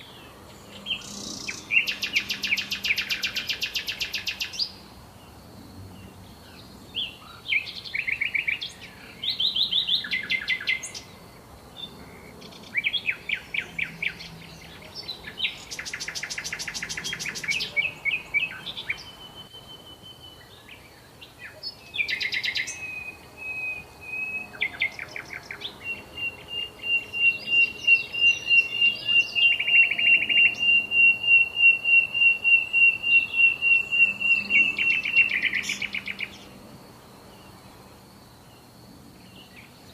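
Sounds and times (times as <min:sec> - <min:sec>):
songbirds singing trills: 0:00.0 - 0:39.9.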